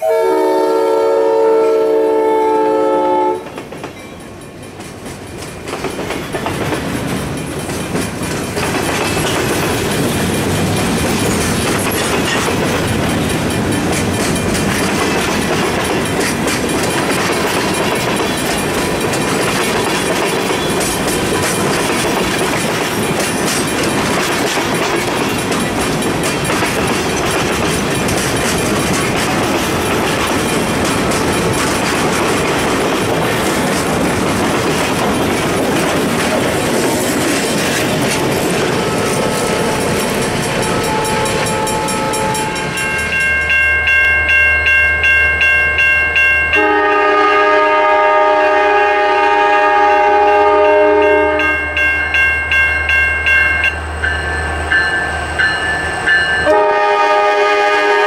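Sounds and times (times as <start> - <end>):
freight train wheels rumbling: 0.0 - 58.0
clickety-clack over rail joints: 3.3 - 43.5.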